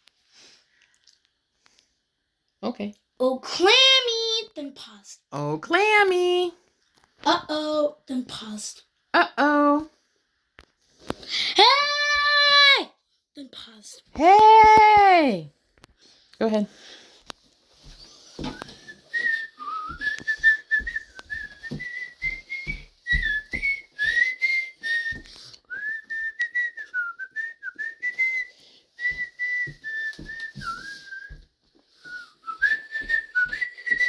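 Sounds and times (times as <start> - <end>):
person whistling a tune: 18.4 - 31.4, 32.0 - 34.0.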